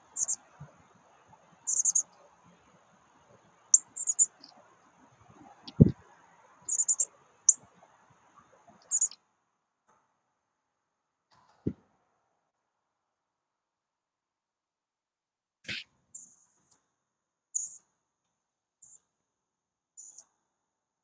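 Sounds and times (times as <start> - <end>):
small birds chirping: 0.0 - 0.6, 1.6 - 2.3, 3.7 - 4.6, 6.7 - 7.6, 8.8 - 9.2, 17.6 - 17.8, 20.0 - 20.3.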